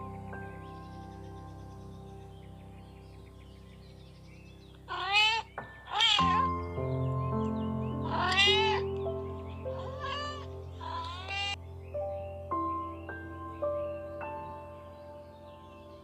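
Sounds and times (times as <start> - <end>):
background music: 0.0 - 16.0
cat meowing: 4.9 - 6.6, 8.0 - 8.9, 9.8 - 11.6.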